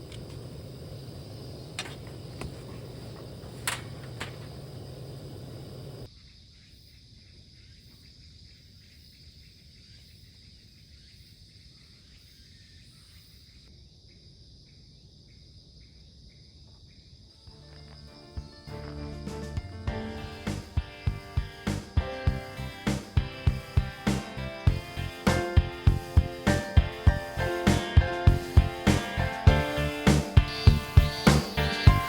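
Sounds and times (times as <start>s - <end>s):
insects trilling: 0.0s - 29.0s
background noise: 0.0s - 32.0s
sharp clicks: 1.7s - 4.6s.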